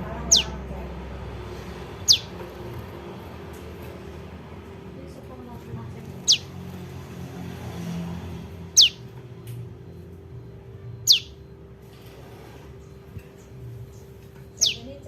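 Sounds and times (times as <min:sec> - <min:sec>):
bird chirps falling in pitch: 0:11.1 - 0:11.4, 0:14.6 - 0:15.0.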